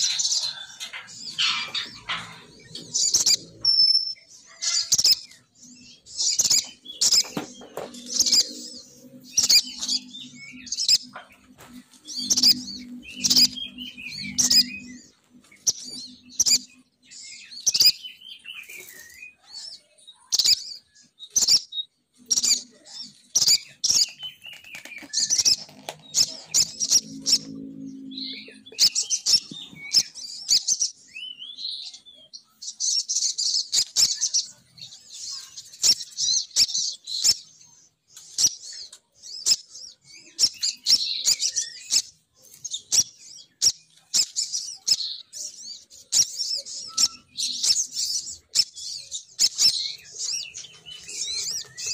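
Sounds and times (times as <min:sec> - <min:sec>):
high rapid bird chirping: 0:00.0 - 0:19.2, 0:20.3 - 0:31.0.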